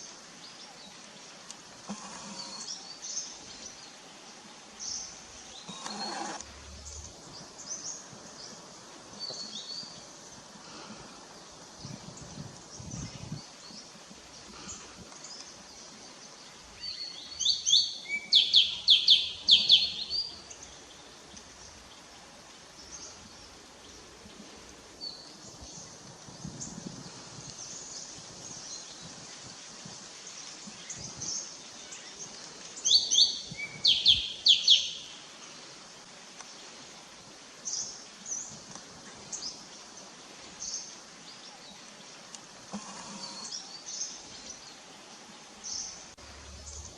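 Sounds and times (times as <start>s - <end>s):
bird chirping: 4.8s - 8.6s, 16.8s - 21.0s, 32.8s - 35.1s.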